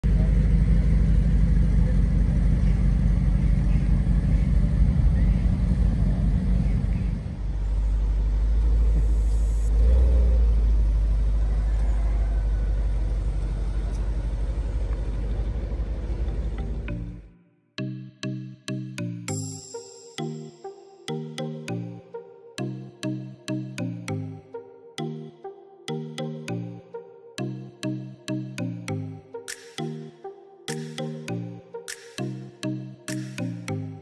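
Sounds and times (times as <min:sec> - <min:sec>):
car engine idling and driving off: 0:00.0 - 0:17.3.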